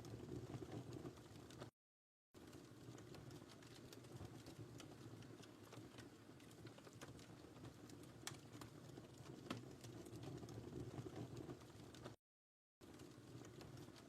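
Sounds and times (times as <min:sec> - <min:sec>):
wood fire crackling: 0:00.0 - 0:01.7, 0:02.4 - 0:12.2, 0:12.8 - 0:14.0.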